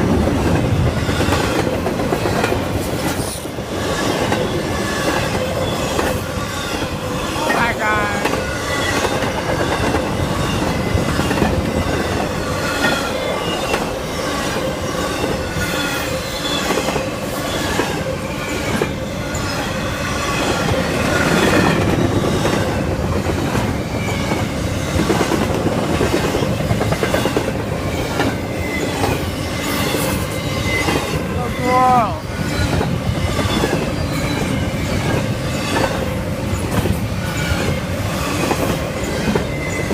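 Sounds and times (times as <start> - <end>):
freight train cars rumbling: 0.0 - 39.9
train wheels squealing: 1.0 - 7.7, 8.4 - 22.8, 23.6 - 25.4, 26.2 - 39.9.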